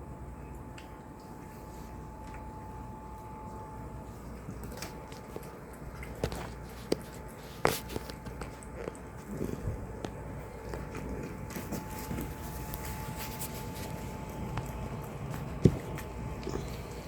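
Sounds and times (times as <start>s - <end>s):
chewing and crunching food: 0.1s - 17.0s
steady low rumble: 8.6s - 17.0s.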